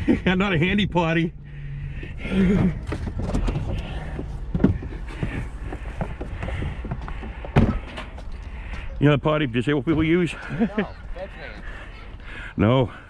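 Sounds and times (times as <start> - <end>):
low engine rumble: 0.0 - 13.0
knocks and clatter: 2.5 - 8.4.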